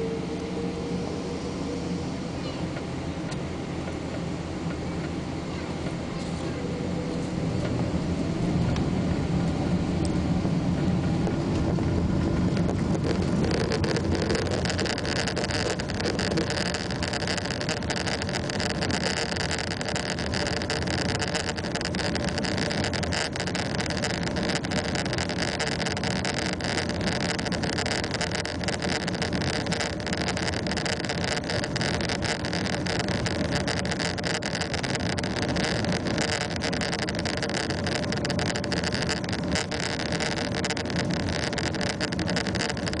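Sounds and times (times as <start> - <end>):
jet engines spooling up: 0.0 - 19.5.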